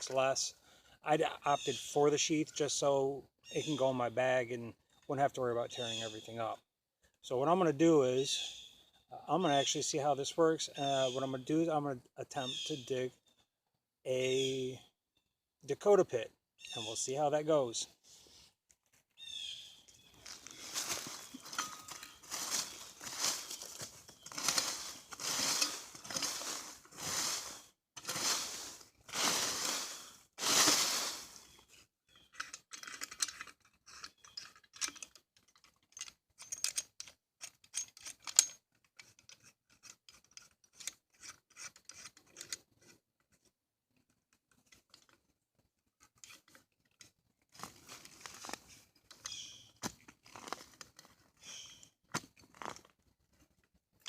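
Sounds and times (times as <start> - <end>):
dirt crunching and scraping: 17.0 - 34.3, 47.5 - 53.2
shovel striking and scraping soil: 20.3 - 31.6, 49.5 - 52.9.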